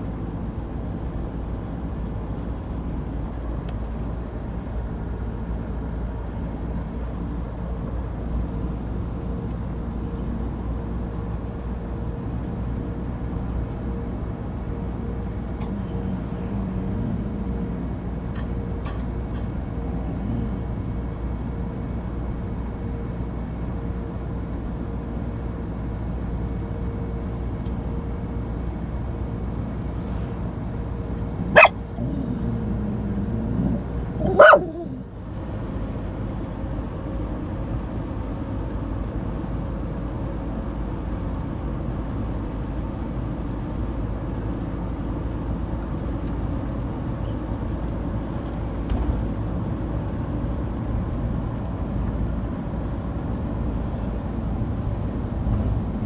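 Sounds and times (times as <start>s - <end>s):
van road and engine noise: 0.0s - 56.0s
dog barking sharply: 31.6s - 35.0s.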